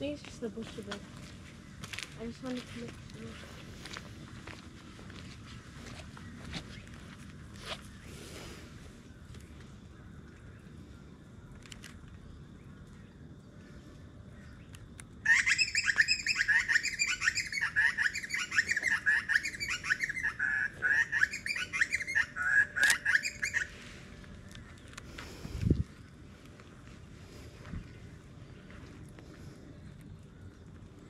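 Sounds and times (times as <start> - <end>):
faint outdoor background: 0.0 - 31.0
birds chirping rapidly: 14.4 - 26.4.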